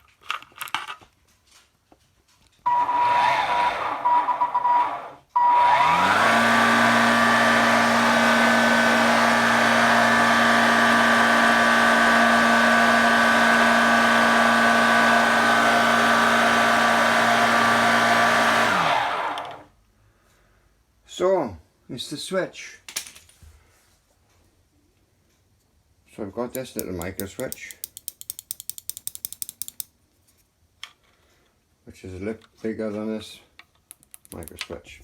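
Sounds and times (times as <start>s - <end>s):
vacuum motor whining: 2.7s - 19.7s.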